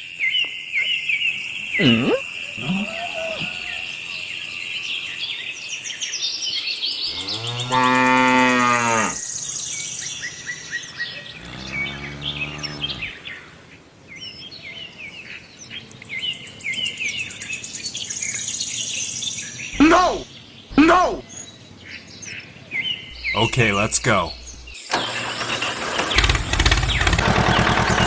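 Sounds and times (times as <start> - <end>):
birds chirping: 0.0 - 28.0
cow mooing: 7.1 - 9.2, 11.3 - 13.2.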